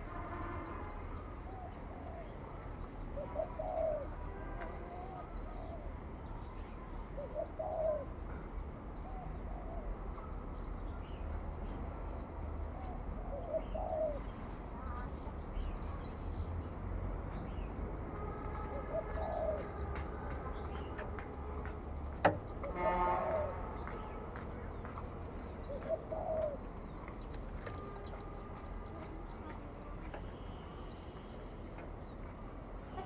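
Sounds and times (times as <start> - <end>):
small birds chirping: 1.5 - 17.8, 18.5 - 33.0
dove cooing: 3.2 - 4.2, 7.2 - 8.2, 13.3 - 14.3, 18.6 - 21.1, 22.6 - 23.6, 25.6 - 27.1.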